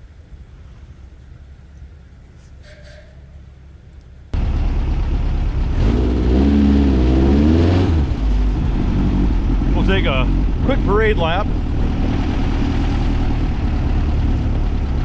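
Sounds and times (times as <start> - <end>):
air-cooled engine revving: 4.4 - 15.0.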